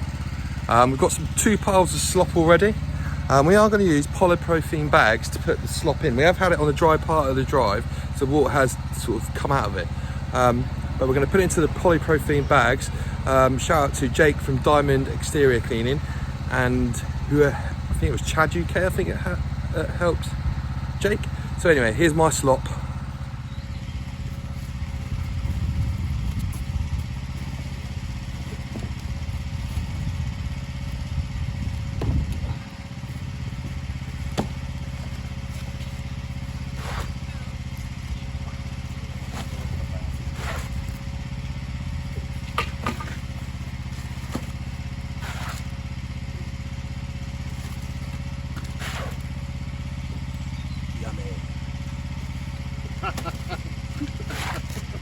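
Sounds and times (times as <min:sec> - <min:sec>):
pressure washer engine droning: 0:00.0 - 0:55.0.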